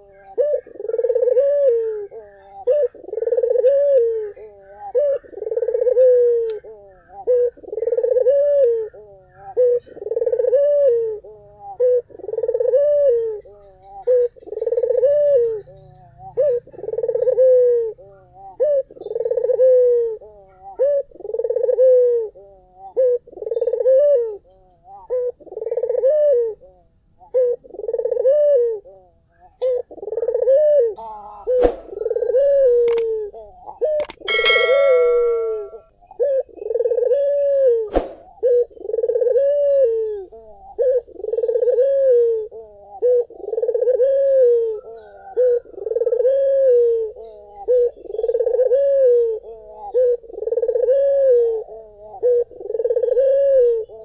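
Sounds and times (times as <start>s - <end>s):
dove cooing: 0.0s - 54.0s
sharp click: 32.8s - 33.1s, 34.0s - 35.6s.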